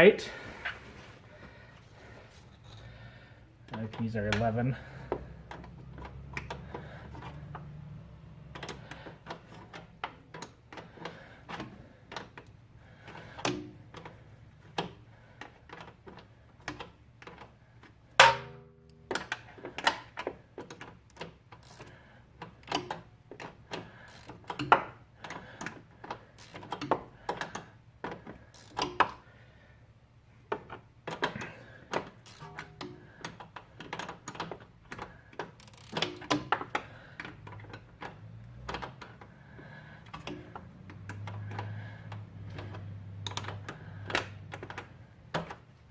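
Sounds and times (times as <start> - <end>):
metallic clank with ring: 32.4 - 32.8.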